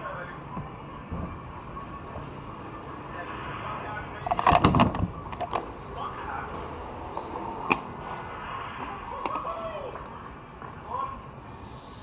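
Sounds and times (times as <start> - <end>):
tools and parts knocking: 4.3 - 5.7.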